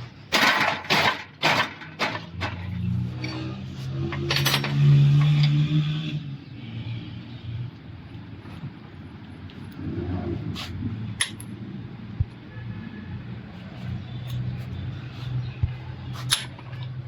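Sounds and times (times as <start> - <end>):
metal tools clinking on workbench: 0.3 - 5.6, 16.2 - 17.0.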